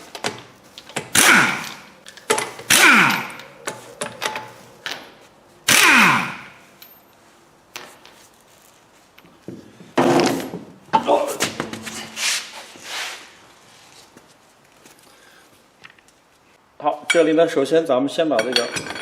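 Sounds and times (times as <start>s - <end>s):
impact wrench rattling: 0.1s - 4.6s, 5.7s - 6.7s.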